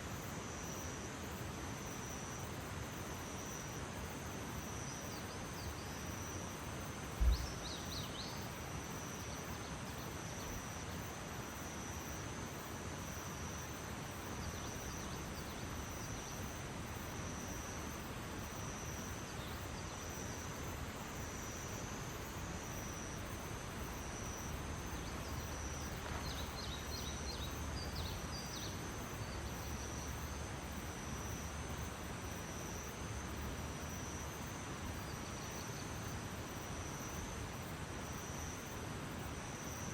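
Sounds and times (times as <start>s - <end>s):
crickets trilling: 0.0s - 39.9s
soft hiss: 0.0s - 39.9s
low thump: 7.2s - 7.6s.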